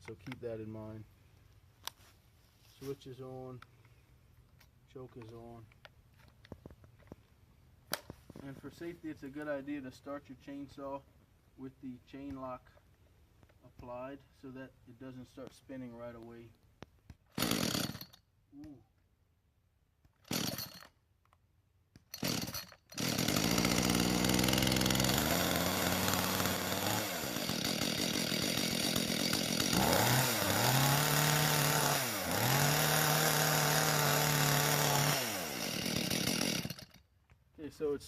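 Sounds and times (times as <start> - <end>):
chainsaw pull-start: 17.3 - 18.2, 20.2 - 21.0, 22.1 - 37.0
two-stroke chainsaw engine running: 17.4 - 18.0, 20.3 - 20.8, 22.2 - 37.0.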